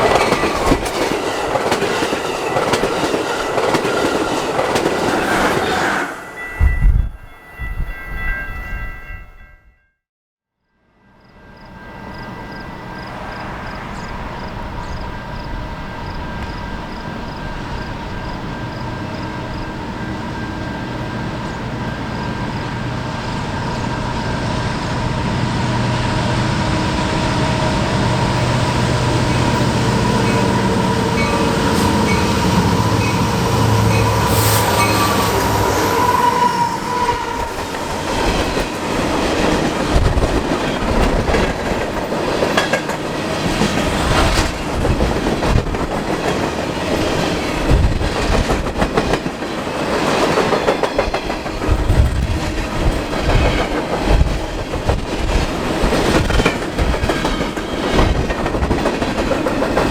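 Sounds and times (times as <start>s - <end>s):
train wheels clicking on rails: 0.0s - 6.2s, 13.0s - 59.9s
locomotive engine droning: 11.9s - 39.2s.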